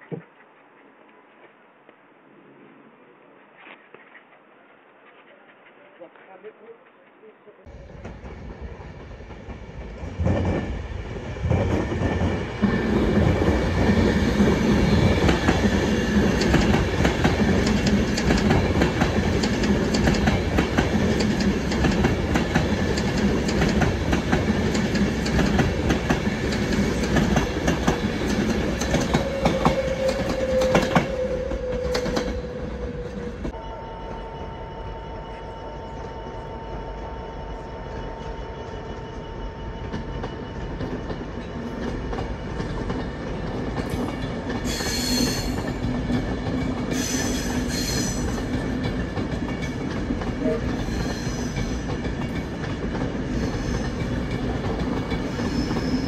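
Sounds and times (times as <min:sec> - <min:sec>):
train rushing past: 0:06.9 - 0:56.0.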